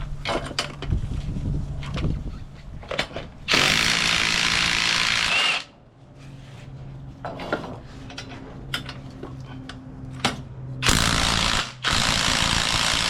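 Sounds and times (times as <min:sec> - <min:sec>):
power tool running: 0:03.5 - 0:05.7, 0:10.8 - 0:13.0.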